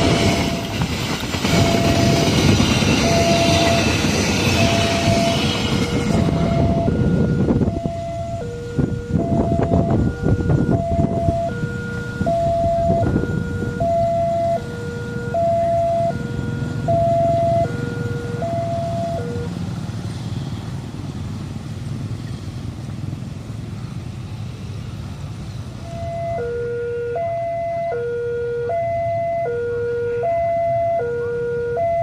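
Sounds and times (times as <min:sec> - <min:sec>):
level crossing alarm tones: 0:00.0 - 0:00.8, 0:01.4 - 0:19.5, 0:25.8 - 0:32.0.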